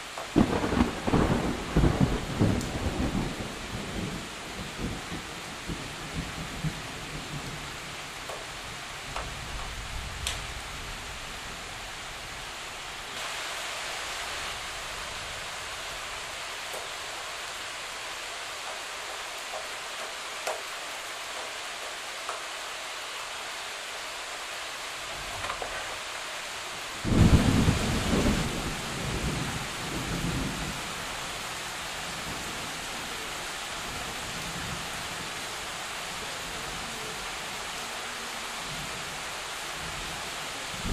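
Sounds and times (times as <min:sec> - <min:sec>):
heavy rain on trees: 0:00.0 - 0:40.9
thunder rumbling: 0:00.4 - 0:08.0, 0:27.0 - 0:31.2.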